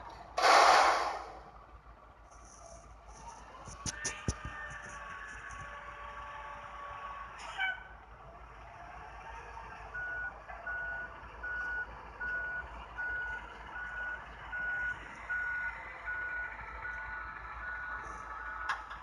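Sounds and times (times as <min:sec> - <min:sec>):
truck reversing alarm beeping: 0:08.4 - 0:19.0.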